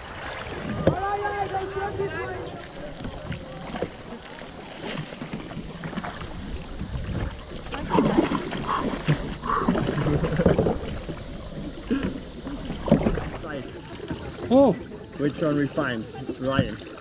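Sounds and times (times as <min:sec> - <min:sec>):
paddle splashes: 0:00.0 - 0:17.0
water sloshing: 0:00.0 - 0:17.0
wind on microphone: 0:05.0 - 0:13.5.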